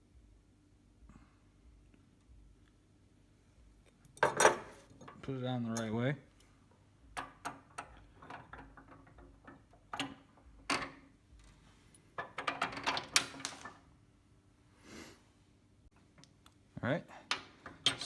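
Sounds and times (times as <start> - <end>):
metal parts clinking and clicking: 17.3 - 18.0.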